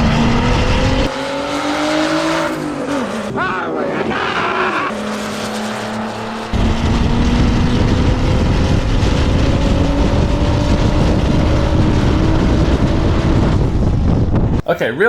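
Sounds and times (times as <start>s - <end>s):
wind rumble on microphone: 6.5s - 14.6s.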